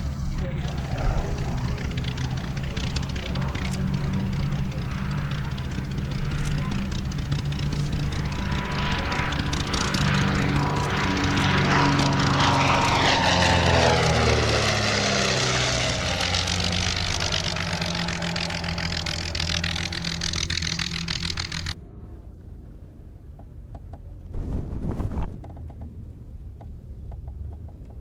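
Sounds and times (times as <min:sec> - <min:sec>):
propeller engine drone: 0:00.0 - 0:21.8.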